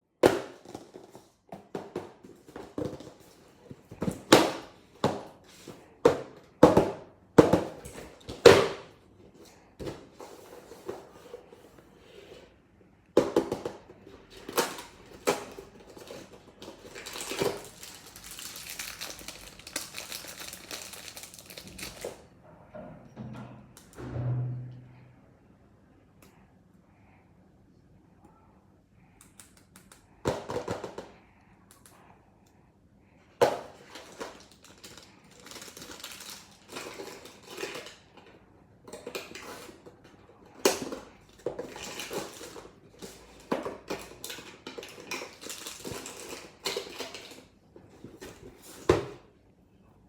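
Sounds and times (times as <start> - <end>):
plastic packaging crinkling: 14.7 - 22.2, 33.8 - 38.0.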